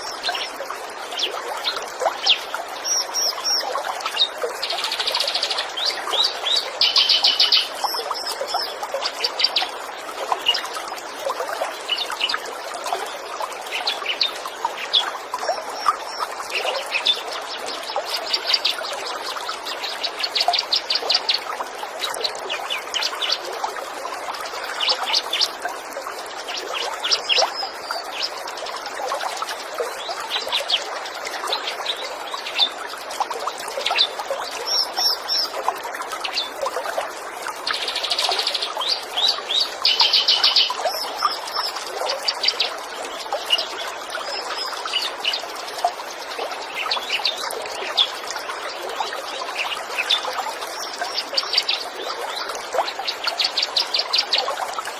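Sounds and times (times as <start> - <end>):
flowing water: 0.0 - 54.9
songbirds chirping and trilling: 37.7 - 45.5.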